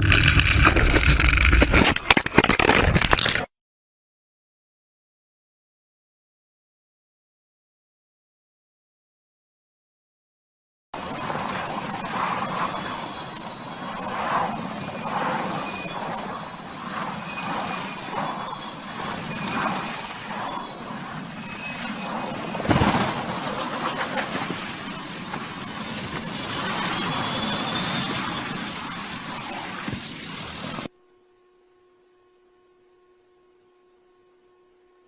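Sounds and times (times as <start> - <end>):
aircraft rushing noise: 11.0 - 30.9.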